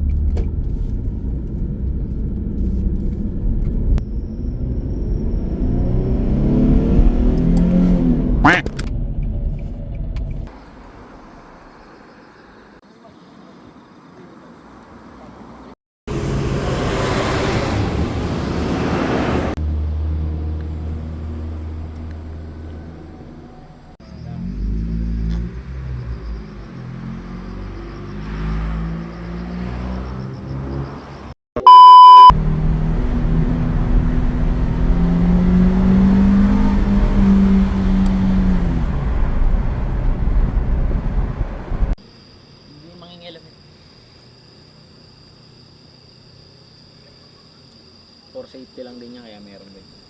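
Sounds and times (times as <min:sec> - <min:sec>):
car engine and exhaust rush: 0:00.0 - 0:12.8, 0:15.3 - 0:42.0
deep exhaust rumble: 0:32.3 - 0:42.0.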